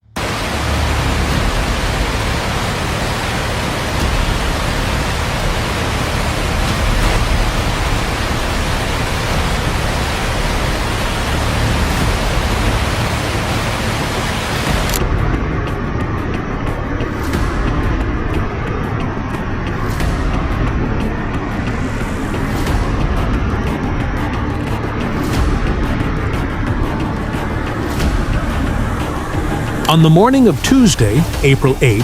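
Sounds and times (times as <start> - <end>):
heavy rain pouring: 0.0 - 15.0, 27.0 - 32.0.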